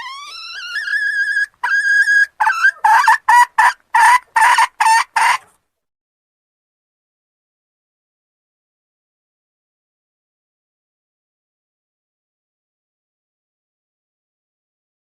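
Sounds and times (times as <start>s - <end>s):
hen clucking: 0.0s - 5.5s
junglefowl hen calling: 0.0s - 5.5s.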